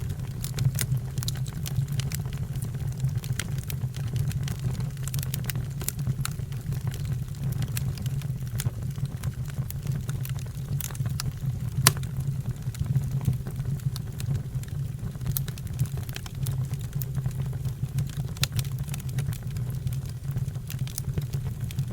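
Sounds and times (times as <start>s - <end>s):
fire crackling and popping: 10.0s - 12.1s.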